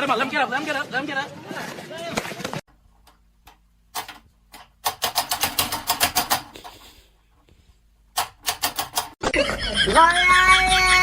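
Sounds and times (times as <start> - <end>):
sharp clicks: 8.1 - 9.2.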